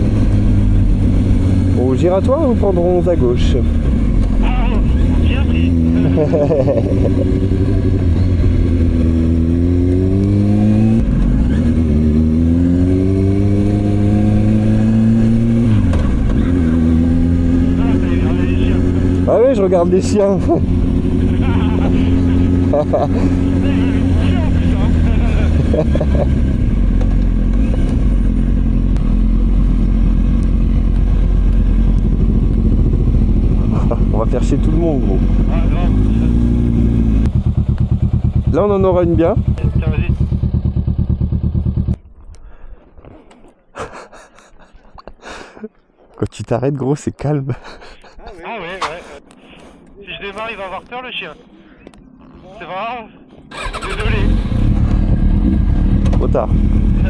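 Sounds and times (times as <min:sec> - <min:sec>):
motorcycle engine accelerating: 0:00.0 - 0:42.6, 0:53.4 - 0:57.0.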